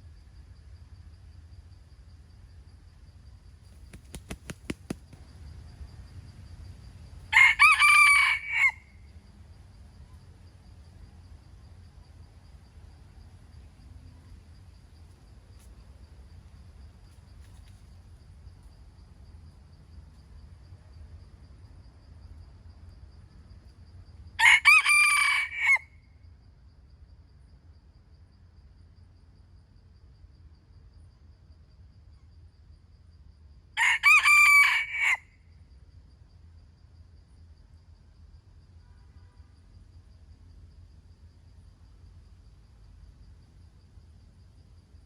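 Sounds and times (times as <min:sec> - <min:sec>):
rooster crowing: 0:07.3 - 0:09.0, 0:24.4 - 0:26.0, 0:33.8 - 0:35.4.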